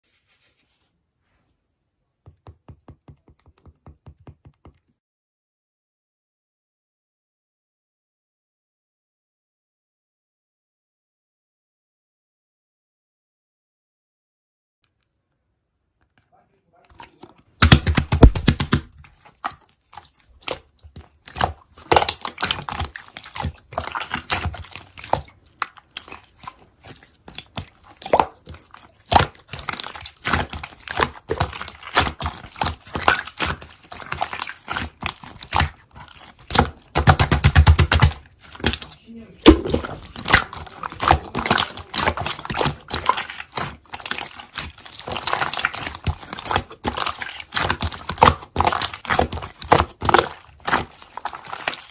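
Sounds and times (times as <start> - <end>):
slime squishing and crackling: 17.0 - 51.9.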